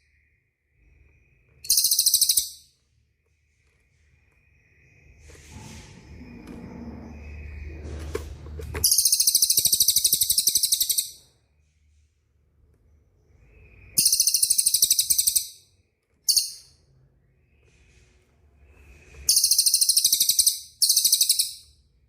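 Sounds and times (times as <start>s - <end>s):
songbird rolling trill: 1.6s - 2.5s, 8.8s - 11.1s
low hum: 2.8s - 9.0s.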